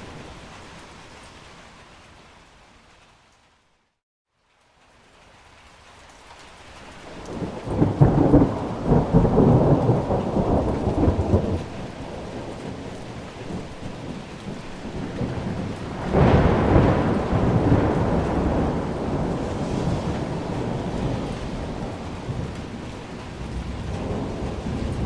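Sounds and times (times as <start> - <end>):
steady rain: 0.0 - 25.0
thunder rolling: 7.2 - 25.0.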